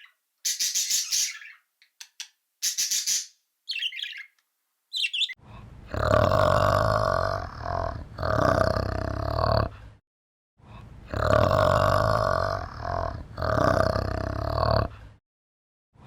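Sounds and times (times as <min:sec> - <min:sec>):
animal grunting call: 0:05.9 - 0:09.7, 0:11.1 - 0:14.9.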